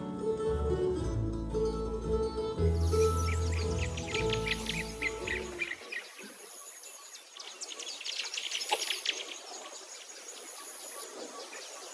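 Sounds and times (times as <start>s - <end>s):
background music: 0.0s - 5.7s
faint outdoor hiss: 2.7s - 11.9s
songbirds chirping: 2.7s - 11.9s.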